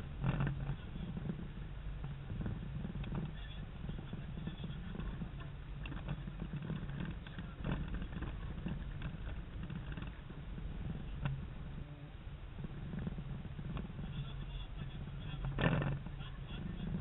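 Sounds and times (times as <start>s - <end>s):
wind buffeting microphone: 0.0s - 17.0s
boat gear clicks and knocks: 0.2s - 3.4s, 4.7s - 11.5s, 15.4s - 16.2s.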